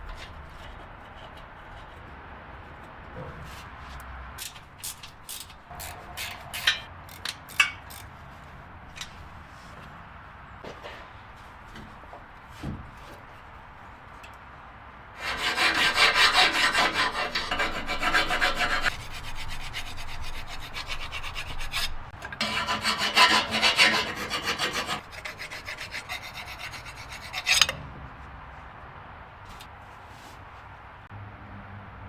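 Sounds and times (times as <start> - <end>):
rubbing strokes on hard surface: 15.2 - 27.6.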